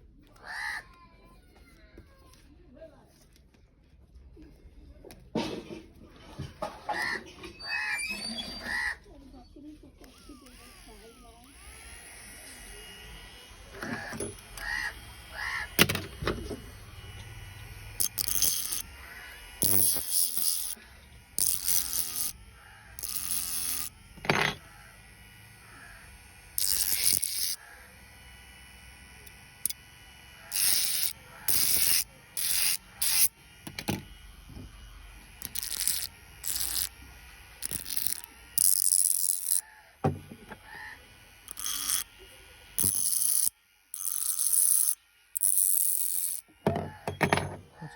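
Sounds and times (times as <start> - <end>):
faint motor hum: 0.0 - 47.9
spinning head scraping metal: 5.4 - 47.9.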